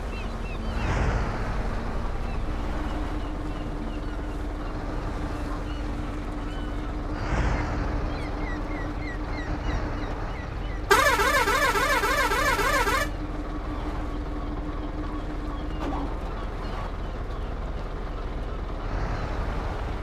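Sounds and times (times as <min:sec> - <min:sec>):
truck engine drone: 0:00.0 - 0:20.0
warbling truck horn: 0:10.9 - 0:13.2.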